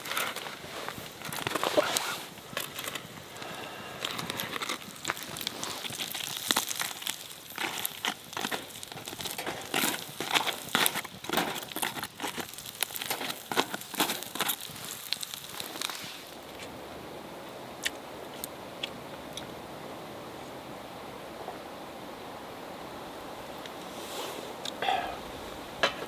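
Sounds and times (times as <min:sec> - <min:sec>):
packaging crinkling and rustling: 0:00.0 - 0:16.4.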